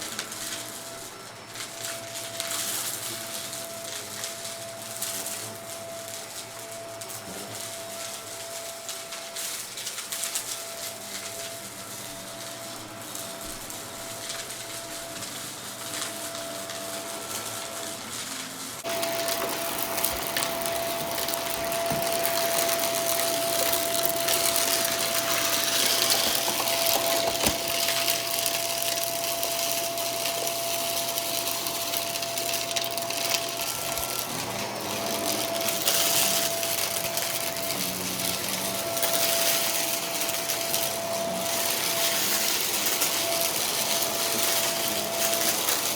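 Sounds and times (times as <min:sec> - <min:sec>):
vacuum cleaner running: 0:00.0 - 0:45.9
debris clicking: 0:18.8 - 0:45.9.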